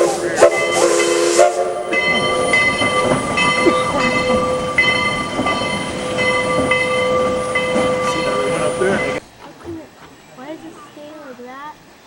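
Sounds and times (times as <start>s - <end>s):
steam locomotive whistle: 0.0s - 4.6s
steam hiss: 0.0s - 6.8s
metallic ringing: 0.4s - 9.2s.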